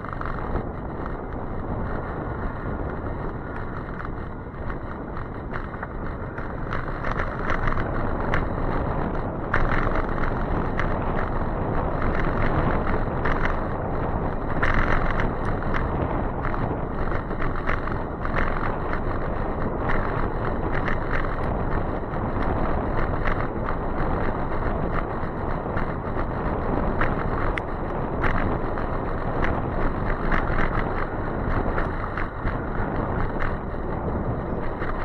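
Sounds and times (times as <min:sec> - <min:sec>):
wet road noise: 0:00.0 - 0:35.0
wind on microphone: 0:00.0 - 0:35.0
short crackles: 0:14.3 - 0:35.0.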